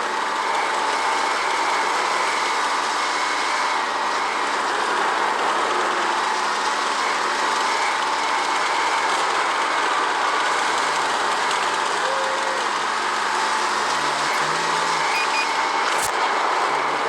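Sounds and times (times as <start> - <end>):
tank engine droning: 9.9 - 17.0.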